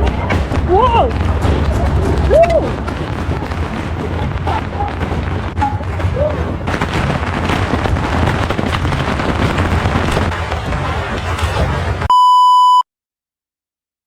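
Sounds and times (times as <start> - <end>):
fireworks crackling densely: 0.0 - 12.1
electronic beep: 12.1 - 12.8.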